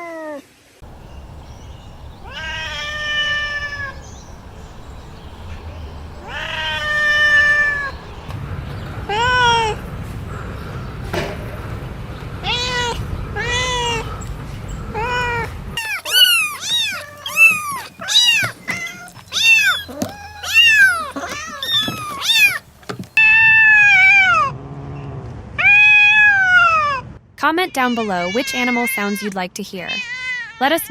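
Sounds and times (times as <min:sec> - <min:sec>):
low rumbling background noise: 0:00.8 - 0:27.5
cat meowing: 0:02.2 - 0:04.1, 0:06.2 - 0:08.0, 0:09.1 - 0:09.8, 0:12.4 - 0:14.1, 0:14.9 - 0:24.5, 0:25.6 - 0:27.0.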